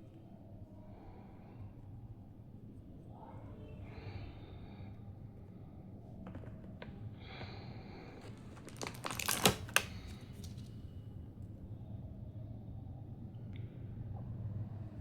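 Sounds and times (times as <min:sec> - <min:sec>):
plastic packaging rustling: 0:08.1 - 0:10.8.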